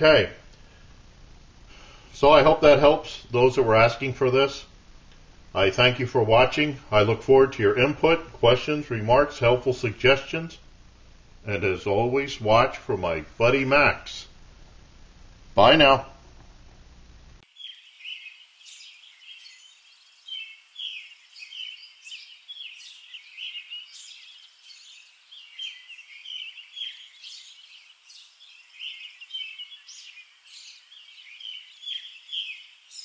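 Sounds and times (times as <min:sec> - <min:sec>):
small birds chirping: 0:17.4 - 0:33.0.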